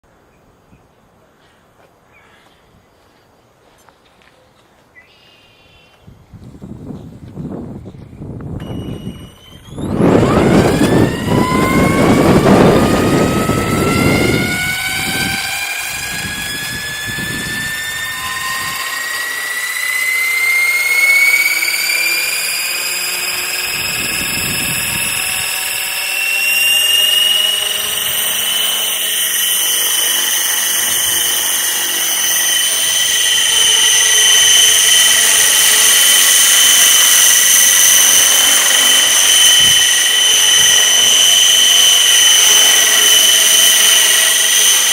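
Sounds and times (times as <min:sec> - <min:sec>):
wind rumbling on microphone: 0:06.0 - 0:18.8, 0:23.7 - 0:25.8
rc helicopter motor whine: 0:06.5 - 0:44.9.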